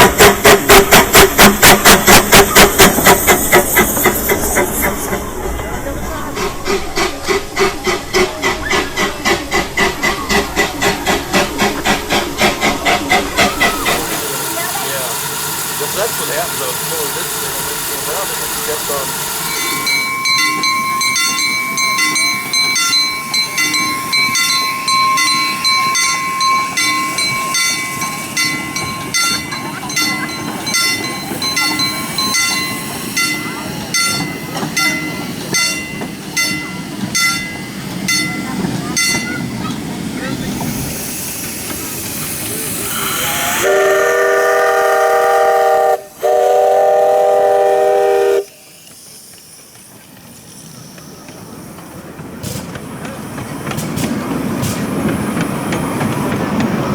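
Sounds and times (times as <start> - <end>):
miniature steam train running: 0.0 - 56.9
steam whistle blasts: 42.8 - 48.7.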